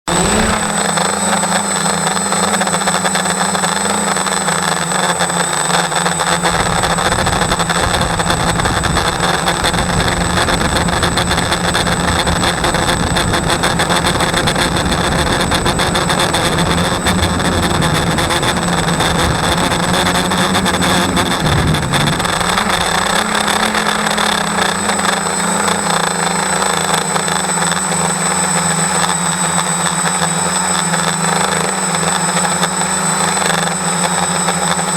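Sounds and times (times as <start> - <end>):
electric motor humming with high whine: 0.1 - 34.9
rough low rumble: 6.6 - 26.0.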